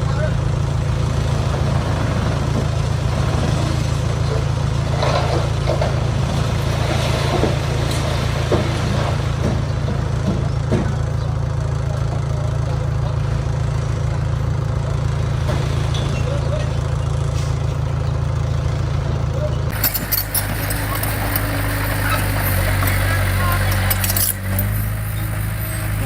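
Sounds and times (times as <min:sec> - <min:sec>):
heavy diesel engine running: 0:00.0 - 0:26.0
metal clanks: 0:19.7 - 0:26.0.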